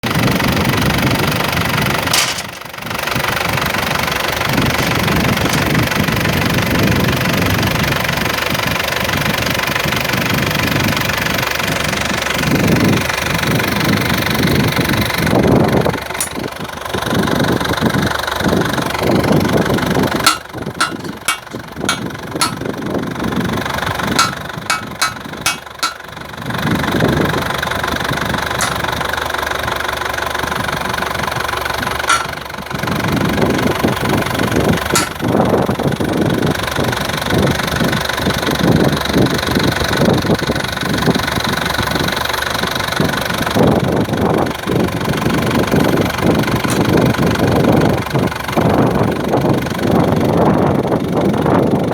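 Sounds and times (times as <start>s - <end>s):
pile driver running: 1.0s - 7.0s, 19.9s - 22.8s, 23.8s - 26.2s, 28.4s - 29.2s, 31.2s - 33.9s, 34.8s - 35.5s
hammer striking sharp blows: 16.2s - 16.5s, 20.3s - 22.7s, 24.2s - 26.1s, 28.6s - 29.0s, 32.1s - 32.5s, 35.0s - 35.3s.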